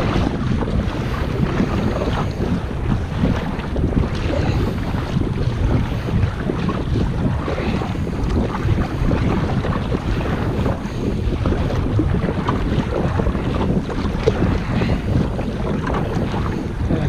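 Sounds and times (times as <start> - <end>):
water splashing around kayak: 0.0 - 17.0
wind buffeting microphone: 0.0 - 17.0.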